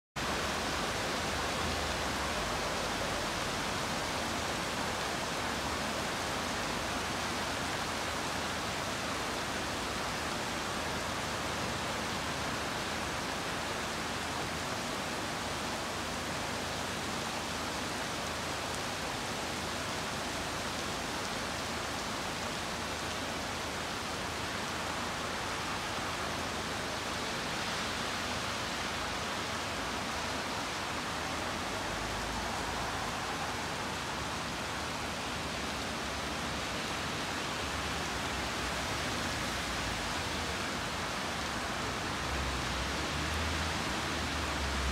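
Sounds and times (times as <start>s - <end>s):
heavy rain hissing: 22.3s - 44.9s.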